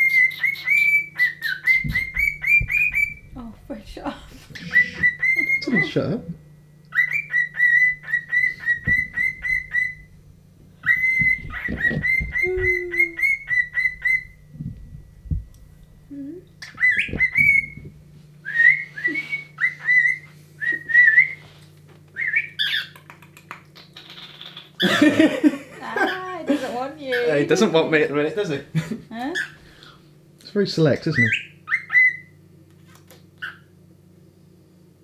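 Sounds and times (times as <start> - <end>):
cockatiel whistling: 0.0 - 3.3, 4.5 - 6.1, 6.9 - 10.1, 10.8 - 14.4, 16.6 - 21.4, 22.2 - 23.0, 31.1 - 32.4.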